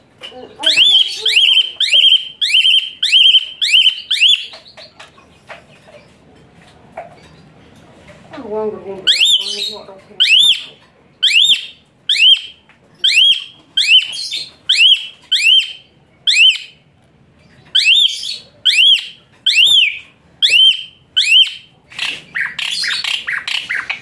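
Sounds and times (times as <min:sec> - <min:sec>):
starling calling shrill notes: 0:00.6 - 0:04.7, 0:09.1 - 0:16.8, 0:17.8 - 0:21.7
bird harsh chattering: 0:00.6 - 0:05.5, 0:09.1 - 0:16.8, 0:17.8 - 0:24.0.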